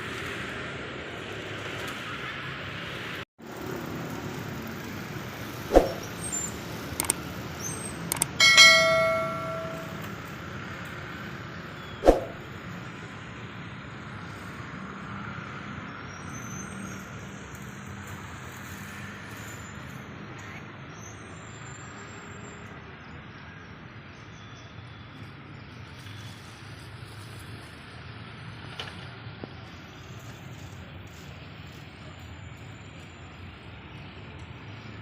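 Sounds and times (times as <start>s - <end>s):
engines and traffic rumbling: 0.0s - 23.0s, 24.9s - 35.0s
sharp metal clank: 5.7s - 6.1s, 8.1s - 10.1s, 12.0s - 12.4s
low hum: 8.4s - 10.0s.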